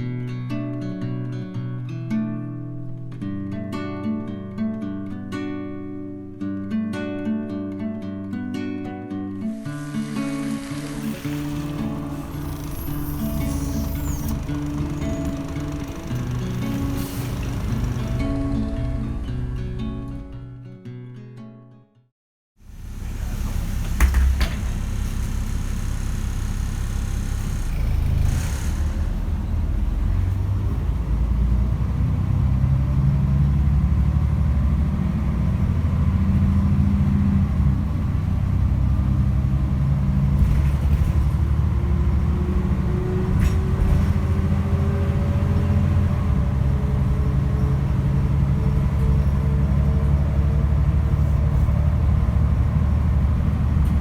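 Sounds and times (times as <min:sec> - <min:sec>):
rising whine: 0:09.6 - 0:19.4, 0:22.6 - 0:31.3
bus engine low rumble: 0:09.8 - 0:20.2, 0:22.6 - 0:54.0.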